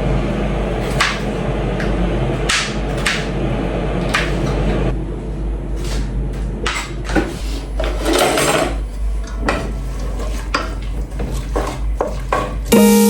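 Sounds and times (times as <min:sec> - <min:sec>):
pots and utensils clattering: 0:05.8 - 0:12.8.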